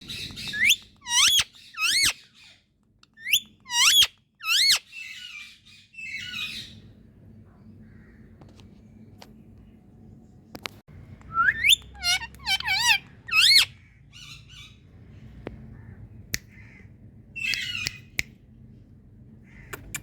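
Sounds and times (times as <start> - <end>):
parakeet chattering: 0.1 - 2.2, 3.2 - 5.4, 11.4 - 14.8
parakeet screeching: 0.1 - 2.3, 3.2 - 6.8, 11.3 - 14.8.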